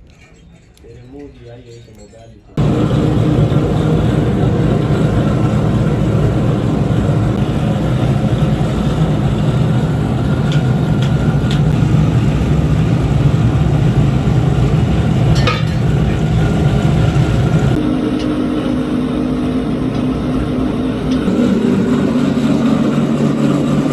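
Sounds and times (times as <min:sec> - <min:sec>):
machinery drone: 0:02.6 - 0:23.9.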